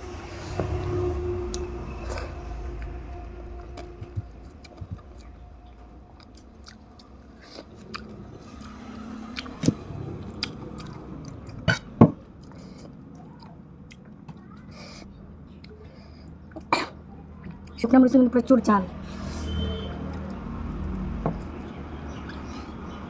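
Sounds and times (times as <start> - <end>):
person chewing food: 3.7 - 15.0.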